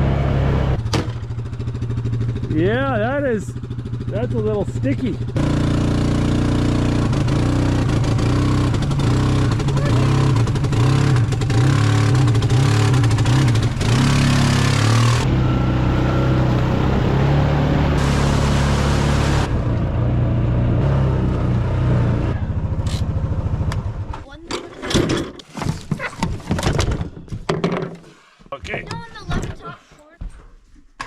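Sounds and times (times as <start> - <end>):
small truck engine revving: 0.0 - 1.0, 5.3 - 24.1.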